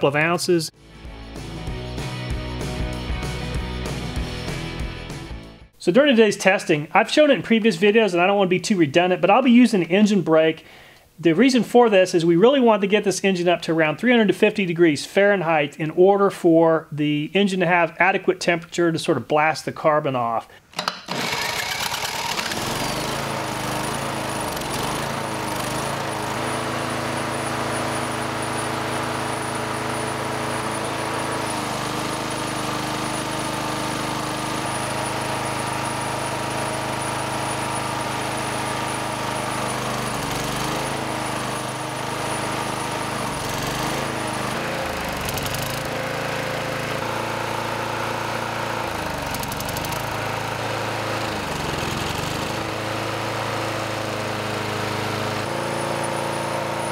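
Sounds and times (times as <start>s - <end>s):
lawn mower engine running: 0.7s - 8.4s, 20.7s - 56.9s.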